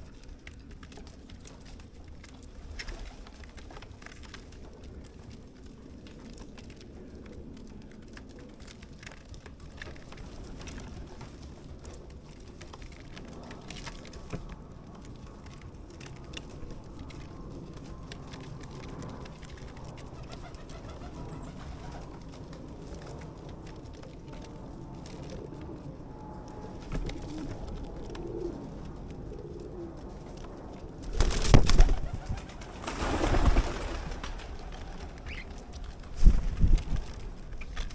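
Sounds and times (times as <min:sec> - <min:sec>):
starlings chattering: 0:34.2 - 0:35.8.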